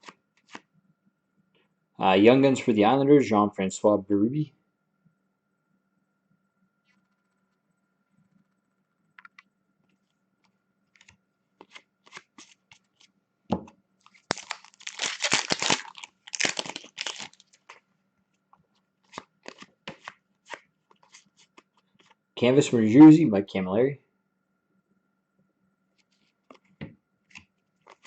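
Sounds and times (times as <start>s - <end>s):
cards being handled: 0.0s - 0.6s, 11.0s - 13.1s, 14.0s - 17.8s, 19.0s - 22.2s, 26.0s - 28.0s
card wrapper crackling: 11.0s - 13.1s, 14.0s - 17.8s, 19.0s - 22.1s.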